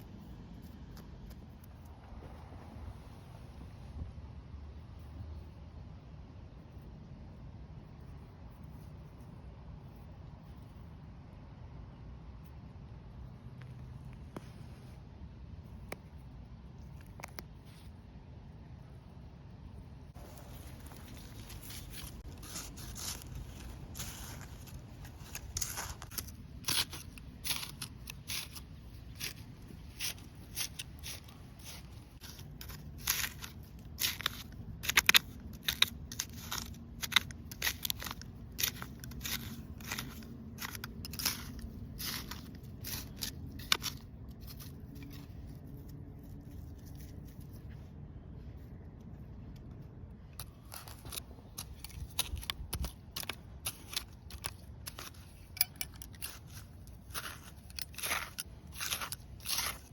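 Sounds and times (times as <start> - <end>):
scissors snipping: 50.4 - 59.9.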